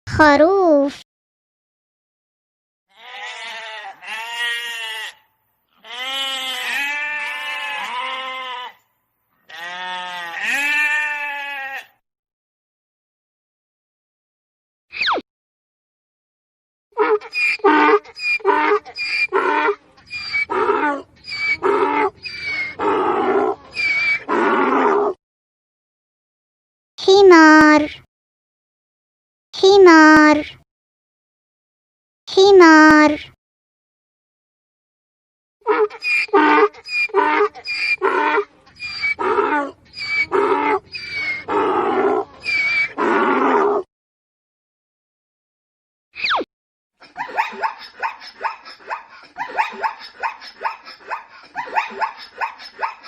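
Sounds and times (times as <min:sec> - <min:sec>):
sheep bleating: 0:02.9 - 0:08.8, 0:09.4 - 0:12.0
donkey braying: 0:17.0 - 0:25.0, 0:35.7 - 0:43.6.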